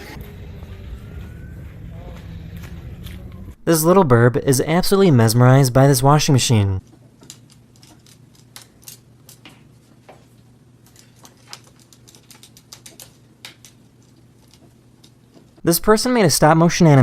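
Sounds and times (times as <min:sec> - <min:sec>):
washing machine hum: 0:06.0 - 0:17.0.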